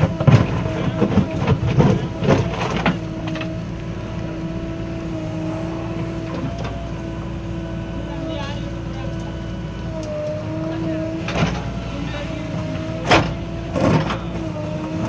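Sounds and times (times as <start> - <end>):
diesel engine whining: 0.0 - 15.0.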